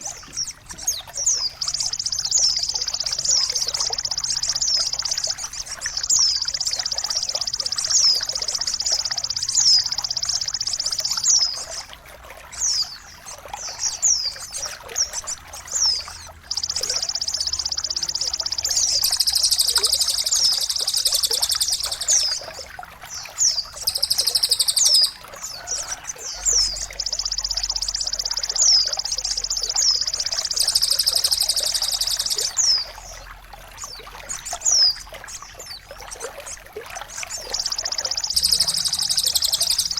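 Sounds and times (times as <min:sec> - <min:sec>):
bird trilling: 0:00.0 - 0:11.6, 0:15.1 - 0:32.9, 0:37.2 - 0:39.9
bird chirps sweeping downward: 0:00.0 - 0:11.7, 0:15.7 - 0:22.6, 0:23.2 - 0:33.0, 0:37.2 - 0:39.9
trickling water: 0:00.0 - 0:39.9.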